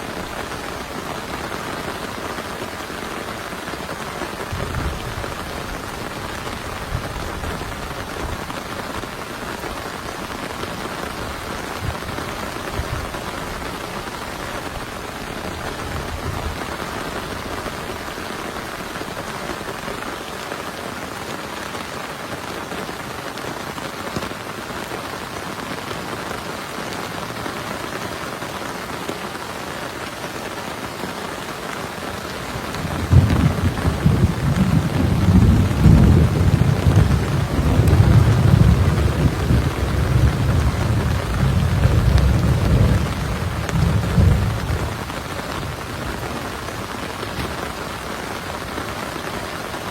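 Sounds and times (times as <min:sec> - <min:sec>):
heavy rain falling: 0:00.0 - 0:49.9
thunder rumbling: 0:04.4 - 0:16.8, 0:32.4 - 0:48.7.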